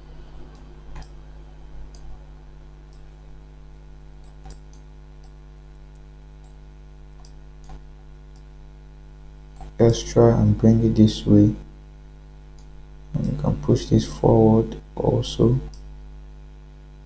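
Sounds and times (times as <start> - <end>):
steady electrical hum: 0.0 - 17.0
computer mouse clicks: 1.9 - 2.2, 2.9 - 3.1, 4.2 - 6.6, 7.2 - 8.5, 9.5 - 9.8, 15.7 - 15.9.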